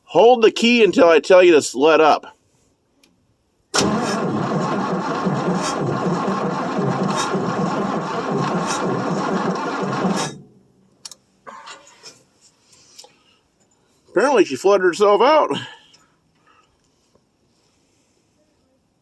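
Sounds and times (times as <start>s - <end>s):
starter cranking engine: 3.8s - 10.6s.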